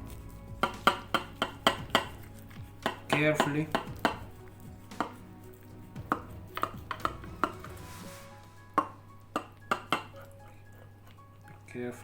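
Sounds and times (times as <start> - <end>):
knife tapping against baking dish: 0.6 - 5.2, 6.0 - 7.7, 8.8 - 10.1
knife scraping dish: 0.6 - 9.0.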